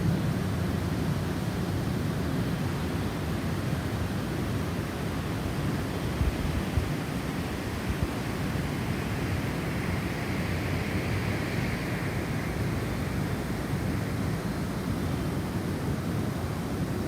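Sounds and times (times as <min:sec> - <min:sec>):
rushing storm wind: 0:00.0 - 0:17.0
whistling wind gust: 0:00.0 - 0:17.0.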